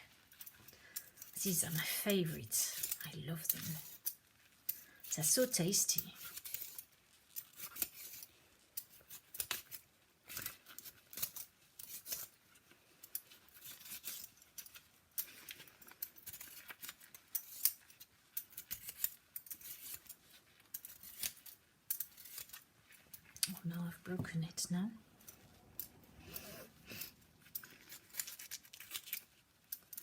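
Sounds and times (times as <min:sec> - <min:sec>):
blade scraping vegetable skin: 0:05.9 - 0:12.4, 0:13.2 - 0:23.3, 0:26.2 - 0:30.0.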